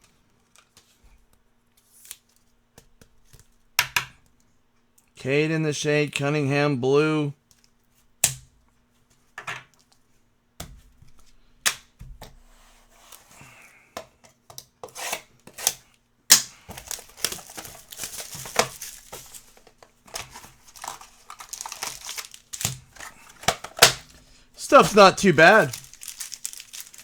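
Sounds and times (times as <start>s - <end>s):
foil packs tearing: 16.7s - 27.0s
wrappers crinkling: 16.7s - 27.0s
cards clicking and snapping: 20.2s - 24.1s, 24.7s - 27.0s.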